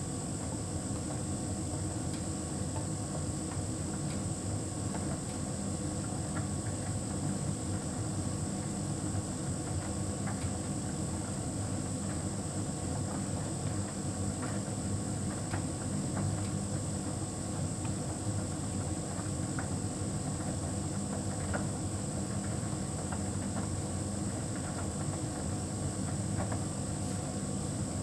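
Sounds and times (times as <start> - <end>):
tumble dryer humming and whining: 0.0 - 28.0.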